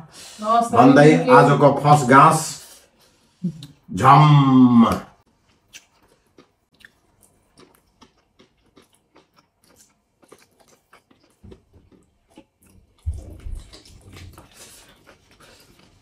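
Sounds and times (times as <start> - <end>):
people chewing: 4.7 - 16.0.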